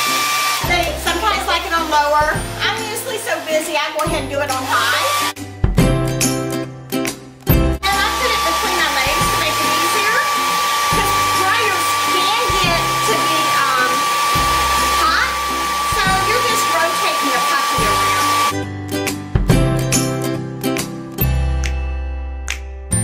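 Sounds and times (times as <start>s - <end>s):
hair dryer running: 0.0s - 5.4s, 7.8s - 18.6s.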